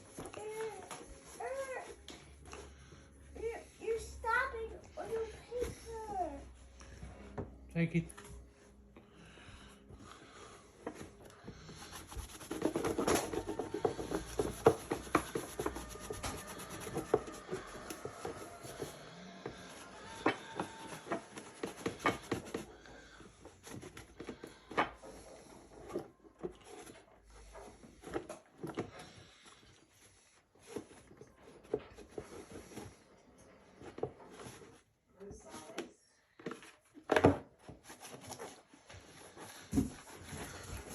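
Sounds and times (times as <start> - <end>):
hand rubbing and scrubbing: 10.3 - 28.4.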